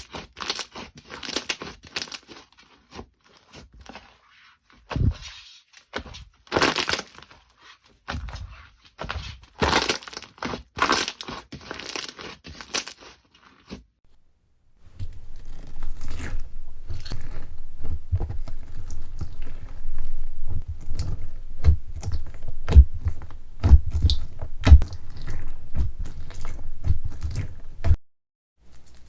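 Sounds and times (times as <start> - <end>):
soft low thuds: 16.4 - 28.0.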